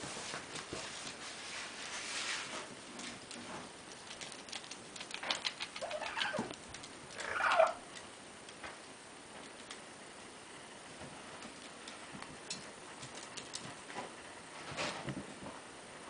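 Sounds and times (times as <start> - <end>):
rapid small clicks: 2.9 - 10.1, 11.3 - 14.0
short animal calls: 7.2 - 7.8.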